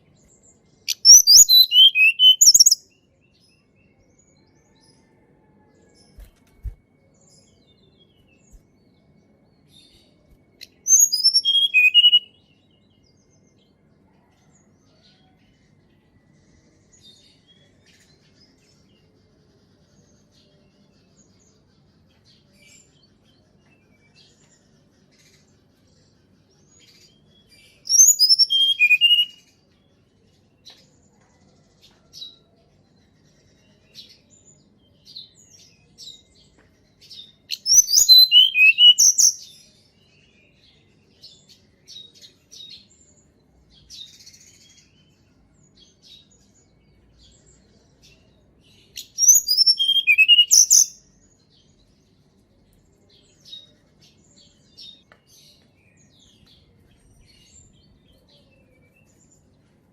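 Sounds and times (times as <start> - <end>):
soft scattered bird notes: 0.0 - 59.9
bird singing whistled notes: 0.2 - 3.0, 5.8 - 13.1, 26.7 - 29.5, 37.1 - 41.4, 48.7 - 51.3.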